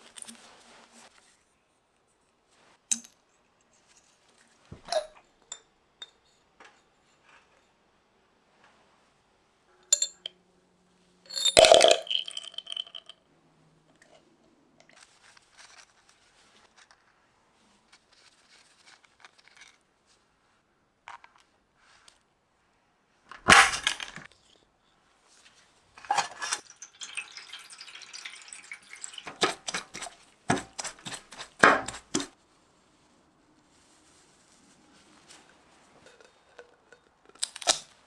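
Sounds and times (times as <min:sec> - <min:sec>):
metallic clicks of tools handled: 0:10.0 - 0:10.3.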